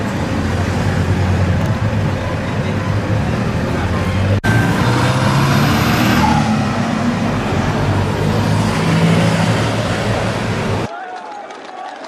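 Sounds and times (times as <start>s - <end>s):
road noise: 0.0s - 10.9s.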